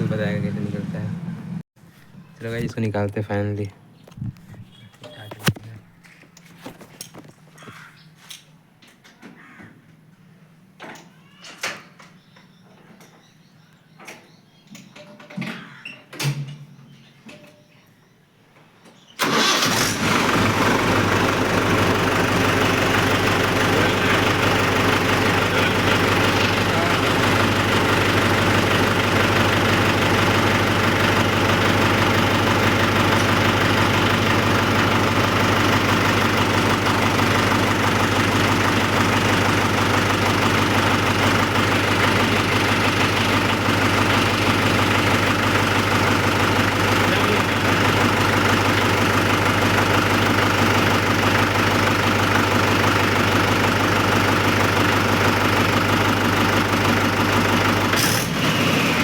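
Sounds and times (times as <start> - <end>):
tractor diesel engine running: 0.0 - 1.6, 19.2 - 59.0.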